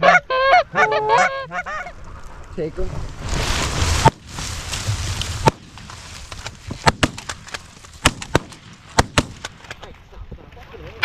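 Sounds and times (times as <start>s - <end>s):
geese flock honking: 0.0s - 2.0s
shotgun blasts: 6.7s - 9.9s.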